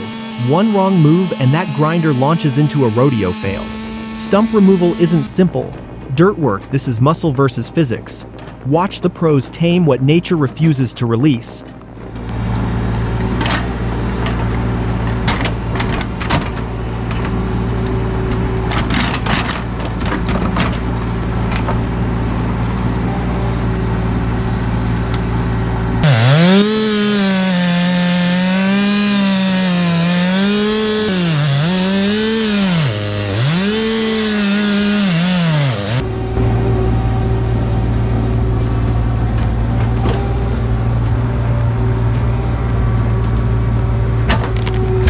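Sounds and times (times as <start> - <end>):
chainsaw engine under load: 0.0 - 6.0, 12.1 - 22.8, 25.1 - 41.2
heavy machinery running: 0.0 - 6.4, 11.9 - 45.0.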